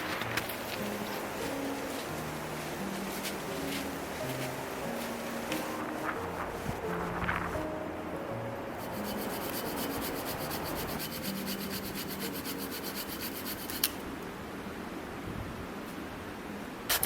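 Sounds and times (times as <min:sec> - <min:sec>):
hand saw cutting wood: 0:08.8 - 0:14.0.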